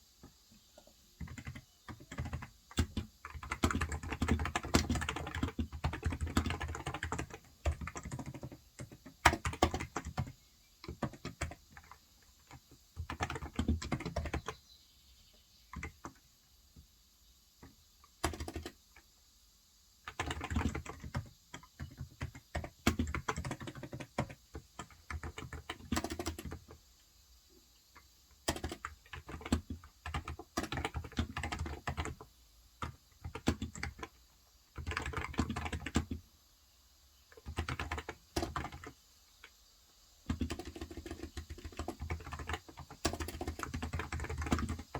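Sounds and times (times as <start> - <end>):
keyboard typing: 0.8 - 14.6, 15.7 - 16.2, 17.6 - 18.8, 20.0 - 26.8, 28.0 - 34.2, 34.8 - 36.2, 37.3 - 39.6, 40.2 - 44.9.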